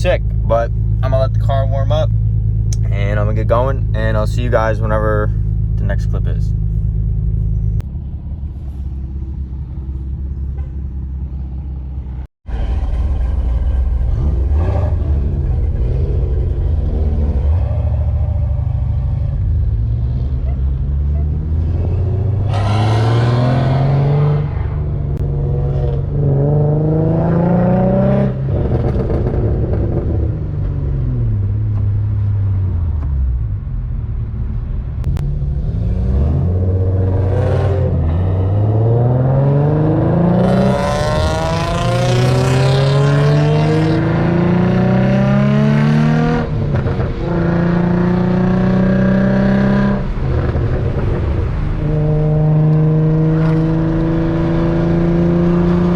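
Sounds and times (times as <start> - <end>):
car engine revving through gears: 12.6 - 32.4, 35.0 - 55.9.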